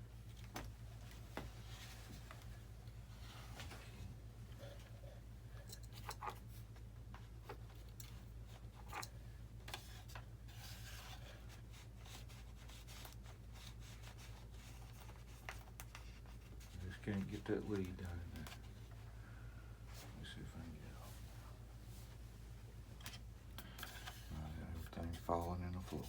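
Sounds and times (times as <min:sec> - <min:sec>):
steady low hum: 0:00.0 - 0:26.0
light rubbing of wires: 0:19.8 - 0:26.0.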